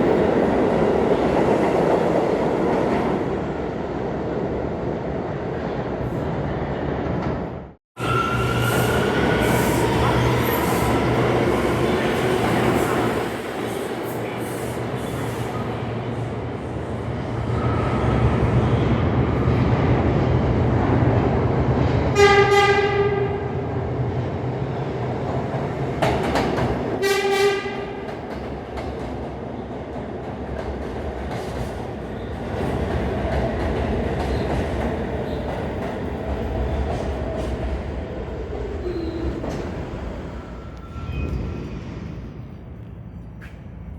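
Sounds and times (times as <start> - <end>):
subway train wheel and rail noise: 0.0 - 43.9
train horn blasts: 22.2 - 23.5, 27.0 - 28.0.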